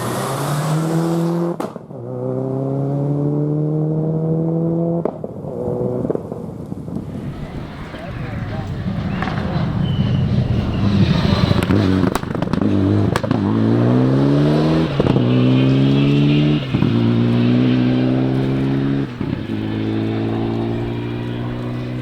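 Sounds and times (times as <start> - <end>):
rally car accelerating through gears: 0.0 - 6.1, 9.0 - 22.0
sharp cracks: 10.8 - 13.5.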